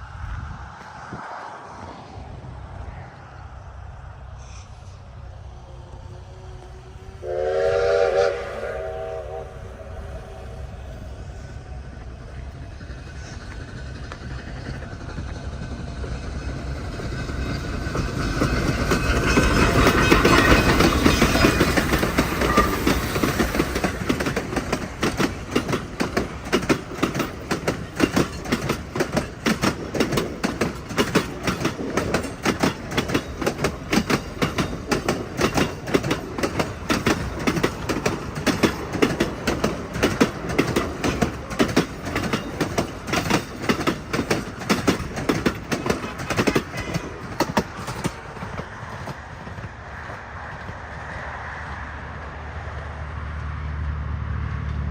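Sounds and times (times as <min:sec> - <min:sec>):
steam train passing: 0:00.0 - 0:54.9
steam locomotive whistle: 0:06.6 - 0:11.0
train wheels clacking on rails: 0:10.8 - 0:53.5.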